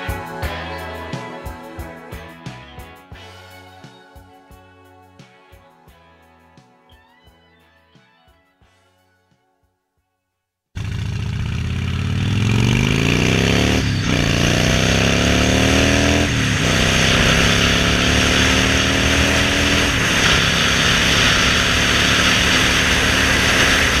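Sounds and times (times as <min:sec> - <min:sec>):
vehicle engine accelerating: 0:10.8 - 0:24.0
wind and road noise: 0:10.9 - 0:24.0.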